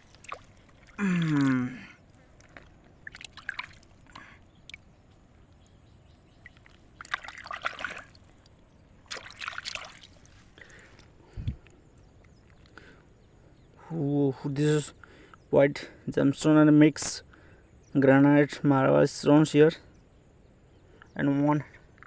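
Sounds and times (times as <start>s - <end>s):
water splashing and trickling: 0.0s - 11.8s.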